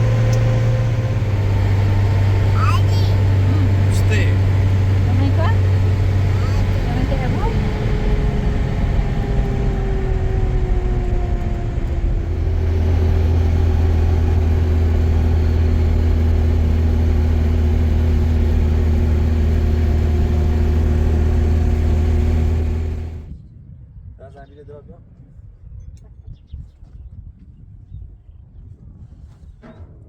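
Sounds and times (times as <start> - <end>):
engine running: 0.0 - 23.3.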